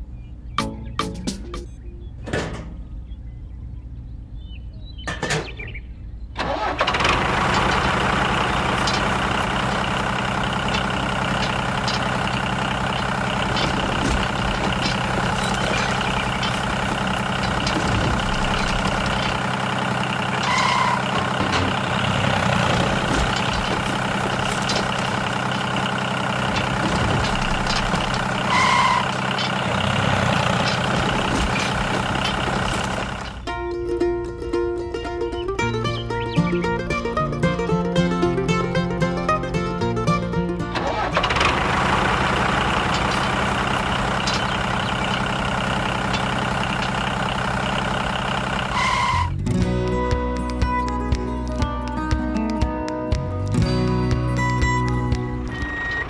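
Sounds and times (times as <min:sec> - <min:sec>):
toy tractor engine running: 0:06.4 - 0:33.5, 0:40.7 - 0:49.4
blade pushing gravel: 0:07.1 - 0:33.4, 0:41.5 - 0:49.3.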